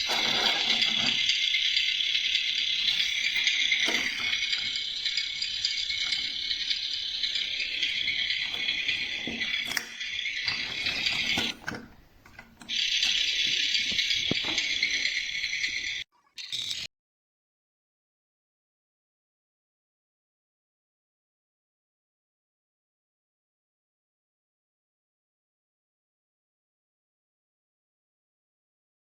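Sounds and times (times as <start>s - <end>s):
clicks: 0.0s - 16.0s
toy tractor rattling: 0.0s - 16.8s.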